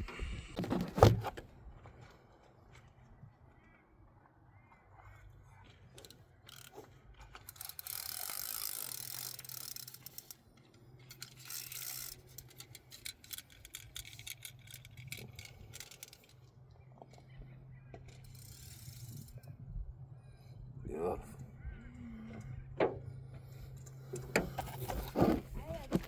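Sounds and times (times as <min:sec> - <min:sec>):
fishing reel ratchet clicking: 0:06.5 - 0:06.8, 0:07.4 - 0:10.4, 0:11.0 - 0:16.4, 0:18.2 - 0:19.4.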